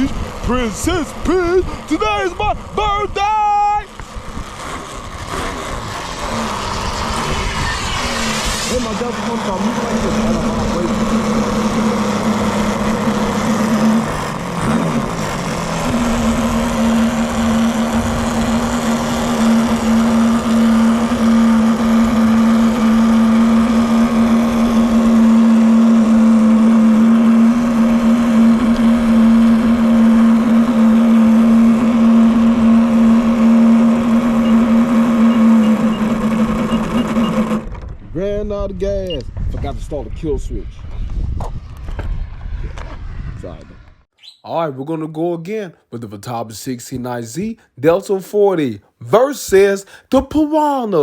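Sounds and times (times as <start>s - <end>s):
model airplane engine running: 0.0s - 37.8s.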